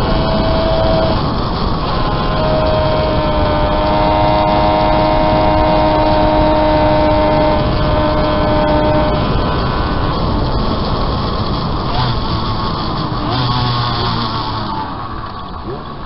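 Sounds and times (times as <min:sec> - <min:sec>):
motorcycle engine running hard: 0:00.0 - 0:16.0.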